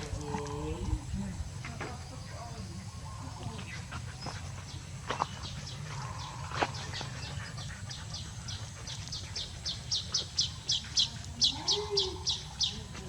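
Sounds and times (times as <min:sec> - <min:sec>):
bird chirping: 0:03.6 - 0:13.0.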